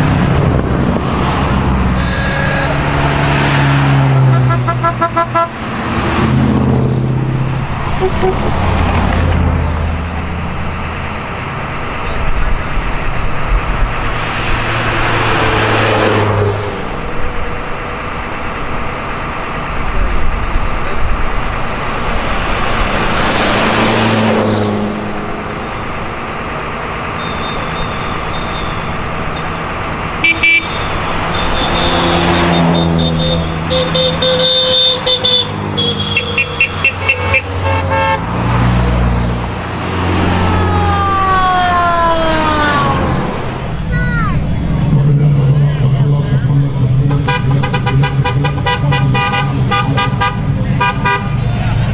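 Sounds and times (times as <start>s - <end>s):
race cars passing: 0.0s - 51.9s
horn tooting: 1.8s - 5.8s, 7.9s - 8.7s, 30.2s - 38.6s, 47.1s - 51.5s.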